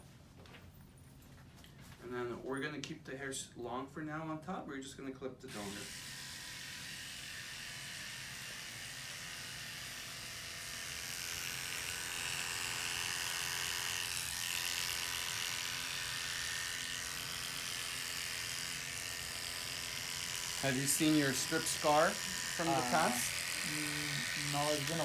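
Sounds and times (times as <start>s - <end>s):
electric hair clippers buzzing: 5.5s - 25.0s.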